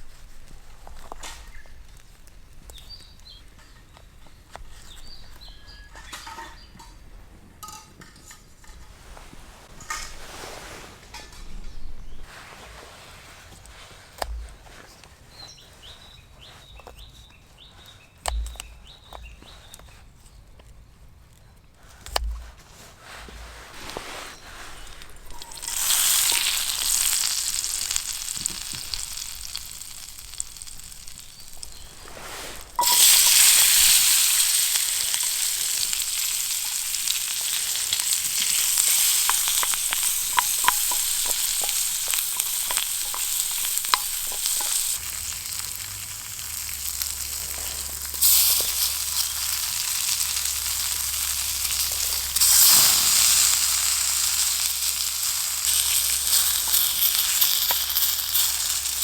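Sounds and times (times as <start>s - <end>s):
food sizzling in a pan: 23.9s - 59.0s.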